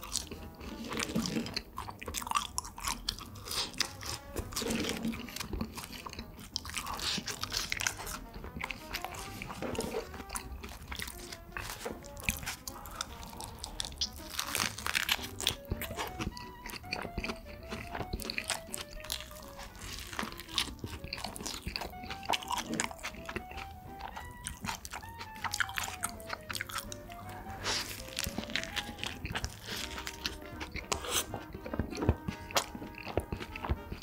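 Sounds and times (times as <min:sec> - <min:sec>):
chewing crunchy burger: 0:00.0 - 0:34.0
light background music: 0:00.0 - 0:34.0.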